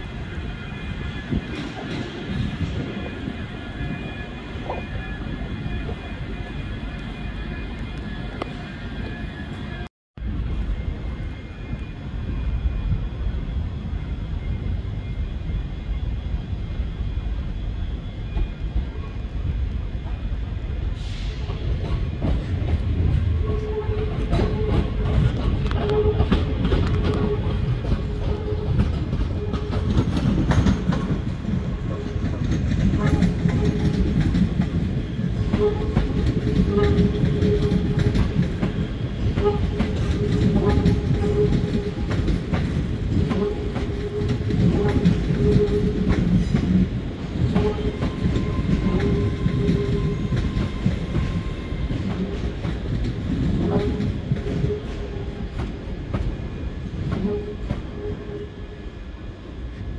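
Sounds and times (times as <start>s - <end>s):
train rumble: 0.0s - 59.9s
train wheels clattering over joints: 21.5s - 56.3s.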